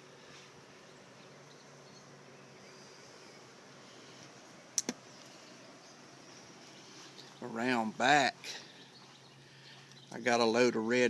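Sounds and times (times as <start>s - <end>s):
faint background hiss: 0.0s - 11.0s
sharp clicks: 4.8s - 5.0s.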